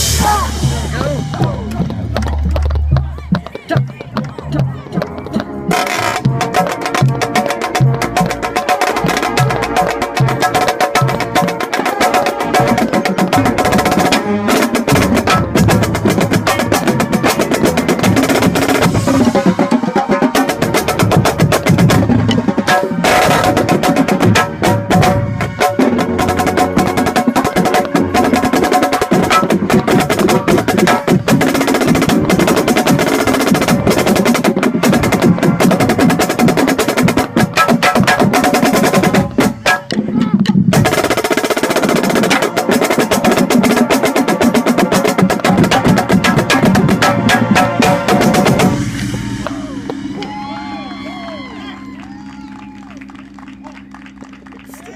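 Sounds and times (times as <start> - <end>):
marching band: 0.0 - 54.9
brass sustained chords: 5.5 - 30.6, 45.7 - 52.0
snare drum rolls: 5.7 - 50.5.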